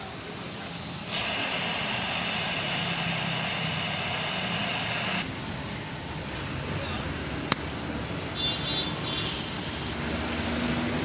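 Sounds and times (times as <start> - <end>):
welding arc hissing and crackling: 0.0 - 5.3, 9.1 - 10.0.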